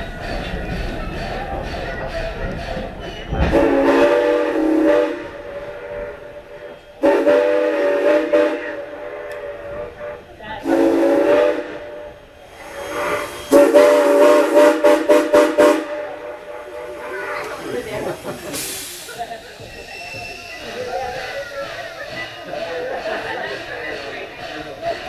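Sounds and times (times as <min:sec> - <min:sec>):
steam hissing: 0:00.0 - 0:25.0
steam whistle blasts: 0:03.5 - 0:17.8.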